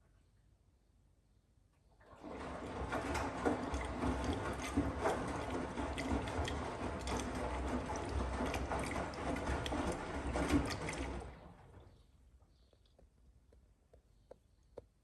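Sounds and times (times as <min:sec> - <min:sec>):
washing machine running: 0:02.0 - 0:12.1.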